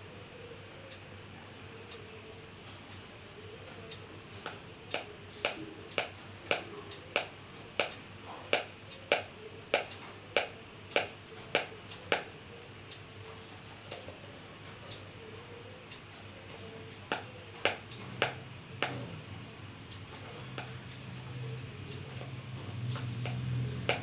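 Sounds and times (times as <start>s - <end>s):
parrot drumming taps: 4.4s - 7.9s, 8.5s - 12.3s, 17.1s - 19.1s.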